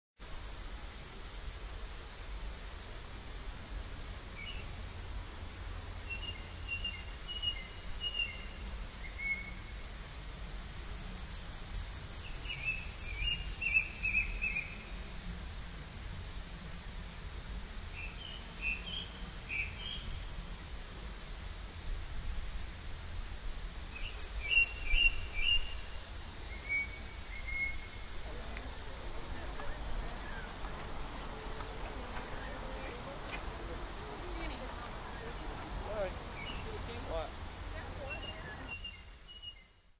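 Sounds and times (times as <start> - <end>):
small birds chirping: 10.7 - 15.2, 24.0 - 39.9
low outdoor rumble: 27.0 - 38.7.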